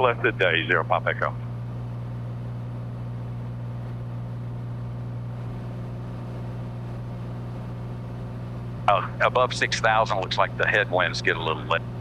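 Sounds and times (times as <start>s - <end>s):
airplane engine and propeller drone: 0.0s - 12.0s.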